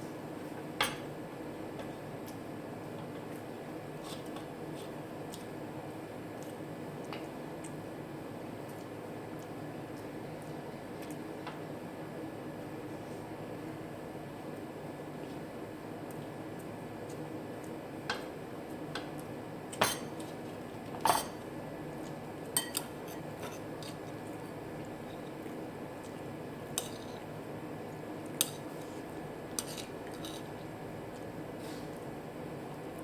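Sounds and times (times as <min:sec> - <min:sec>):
utensils clinking against plate: 0:19.7 - 0:20.3, 0:21.0 - 0:21.4, 0:22.6 - 0:24.1, 0:29.6 - 0:30.5.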